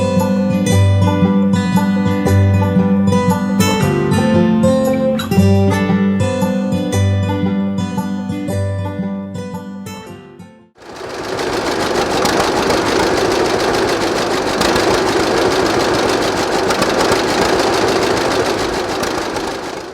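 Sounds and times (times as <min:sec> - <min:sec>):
tractor engine running: 0:10.8 - 0:19.9.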